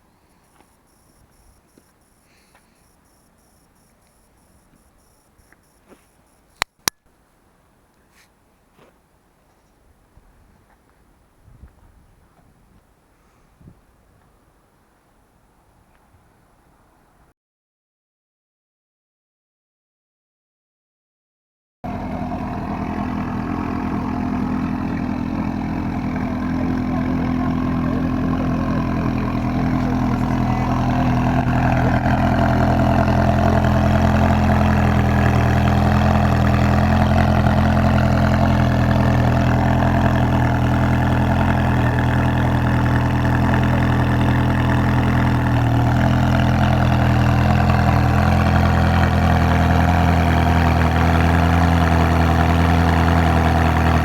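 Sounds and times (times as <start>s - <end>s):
car engine idling: 0.0s - 6.6s, 21.9s - 54.0s.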